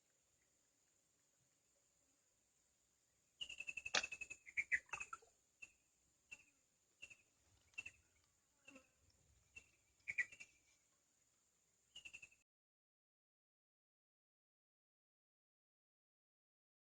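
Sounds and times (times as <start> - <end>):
bird chirping: 3.4 - 10.8, 11.9 - 12.4.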